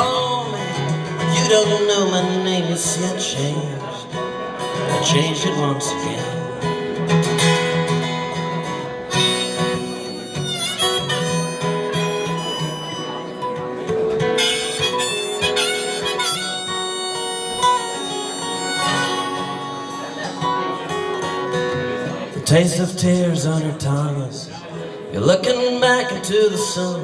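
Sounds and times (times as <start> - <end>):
acoustic guitar: 0.0 - 27.0
harmonica solo: 8.4 - 21.5.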